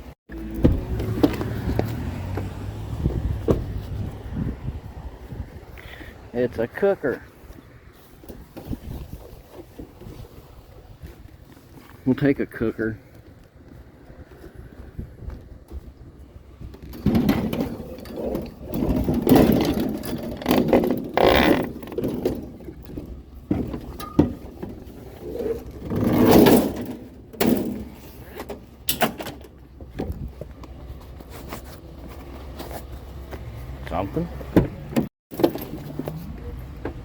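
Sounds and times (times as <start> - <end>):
scrap metal clanking and scraping: 16.7 - 33.2.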